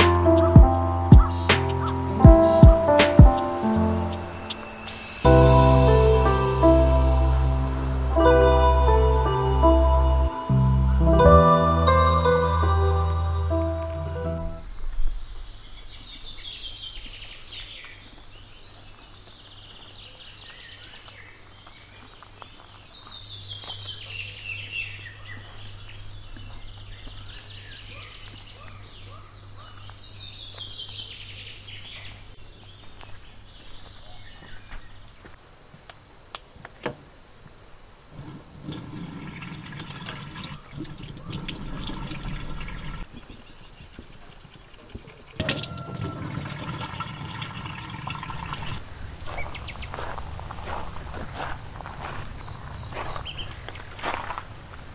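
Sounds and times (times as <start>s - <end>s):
high insect drone: 0.0s - 15.7s.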